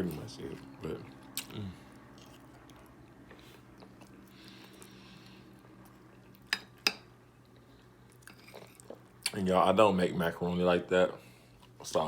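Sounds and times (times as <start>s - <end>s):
person chewing food: 0.5s - 9.4s.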